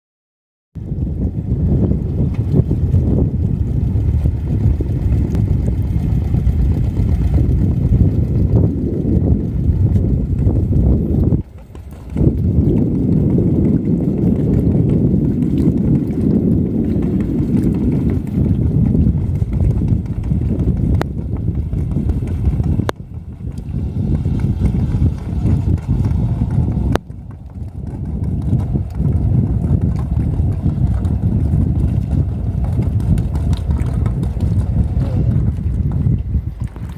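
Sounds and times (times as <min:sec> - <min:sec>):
marine engine running: 0:00.8 - 0:36.9.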